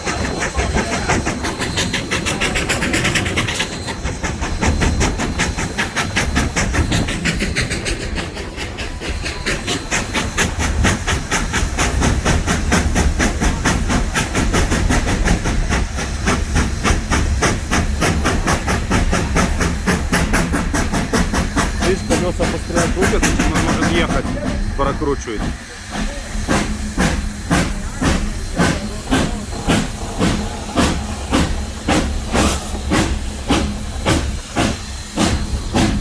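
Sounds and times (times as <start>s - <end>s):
steady steam hiss: 0.0s - 36.0s
steam locomotive exhaust chuffing: 0.0s - 36.0s.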